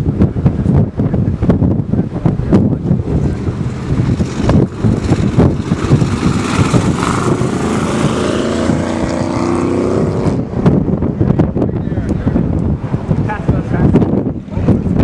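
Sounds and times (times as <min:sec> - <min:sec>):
wind buffeting microphone: 0:00.0 - 0:15.0
vehicle engine passing: 0:02.4 - 0:10.8.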